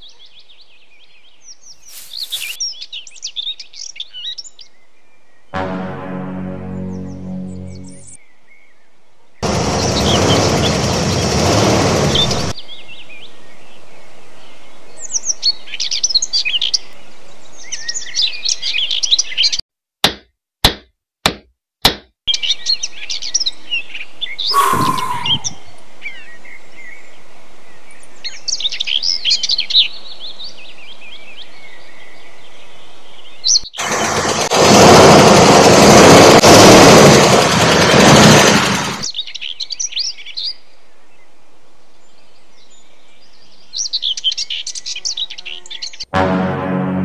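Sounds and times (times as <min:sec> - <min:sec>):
birds chirping: 0:00.0 - 0:05.7, 0:24.4 - 0:26.4
outdoor ambience: 0:00.0 - 0:16.1, 0:24.1 - 0:28.8
descending whistling sound: 0:24.5 - 0:25.8.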